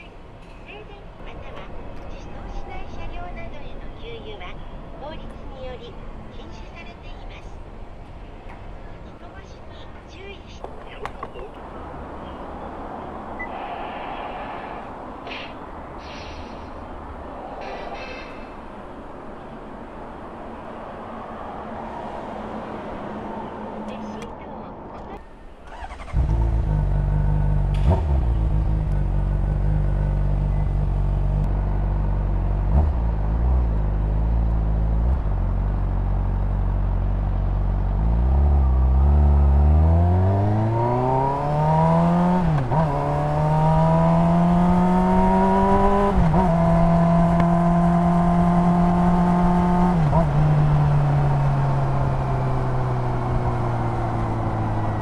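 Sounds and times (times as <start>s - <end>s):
motorcycle engine accelerating: 25.7s - 55.0s.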